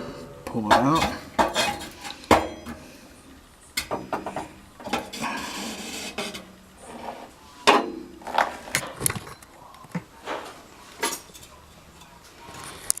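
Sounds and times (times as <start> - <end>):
metallic clanks and scrapes: 0.0 - 2.9, 3.8 - 9.4.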